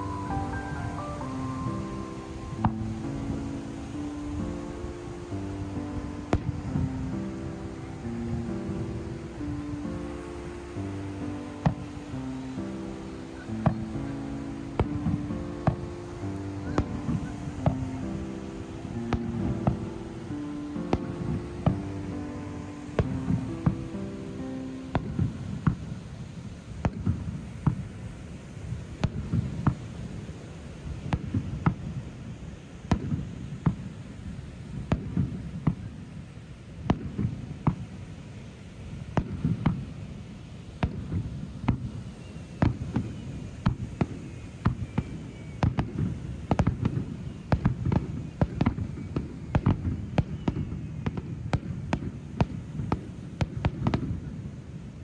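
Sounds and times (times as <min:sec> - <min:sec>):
fireworks whistling: 0:00.0 - 0:04.6, 0:10.8 - 0:24.0, 0:40.8 - 0:54.2
fireworks booming and cracking: 0:42.6 - 0:54.6.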